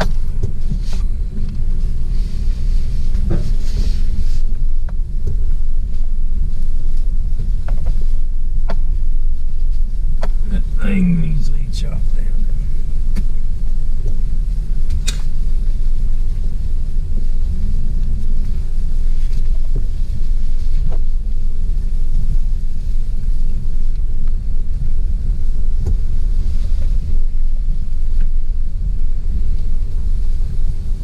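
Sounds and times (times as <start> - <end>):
loud low rumble: 4.5 - 19.0.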